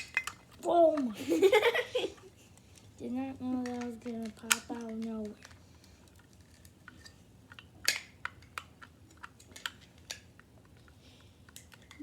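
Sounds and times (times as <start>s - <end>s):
plastic bricks clicking and clattering: 3.6s - 5.6s.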